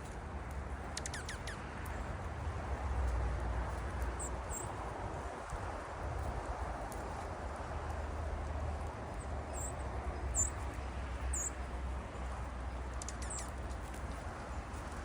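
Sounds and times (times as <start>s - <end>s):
birds chirping: 1.0s - 2.0s, 11.3s - 11.6s, 12.7s - 13.6s.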